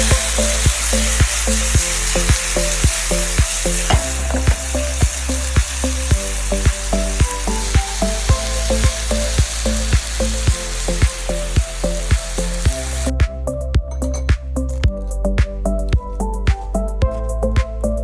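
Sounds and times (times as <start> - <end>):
food sizzling in hot oil: 0.0 - 13.1
background music with bass: 0.0 - 18.0.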